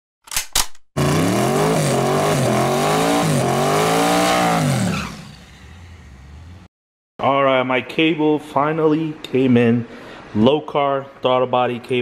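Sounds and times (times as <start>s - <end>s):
car engine accelerating hard: 1.0s - 6.7s.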